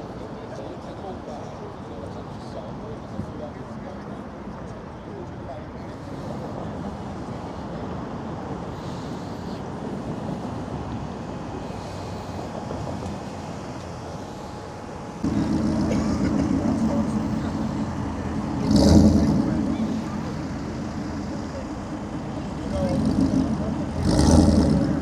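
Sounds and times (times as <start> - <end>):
car park background noise: 0.0 - 25.0
car engine running: 11.4 - 25.0.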